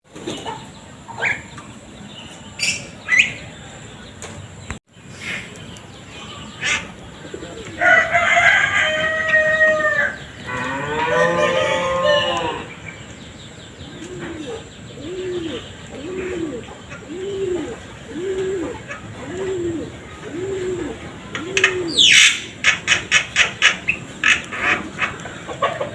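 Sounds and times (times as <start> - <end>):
rooster crowing: 7.7 - 12.7
long animal call: 9.6 - 12.7.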